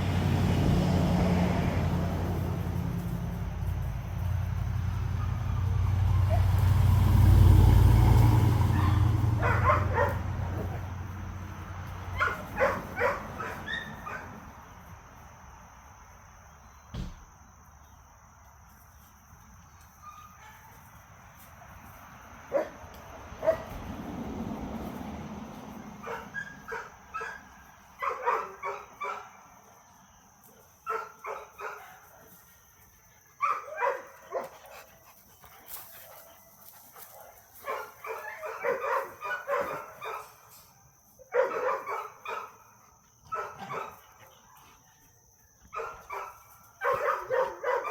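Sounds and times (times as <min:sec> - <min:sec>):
dogs barking and yipping: 0:04.6 - 0:06.8, 0:08.0 - 0:14.6, 0:22.5 - 0:23.8, 0:25.8 - 0:29.5, 0:30.6 - 0:47.9.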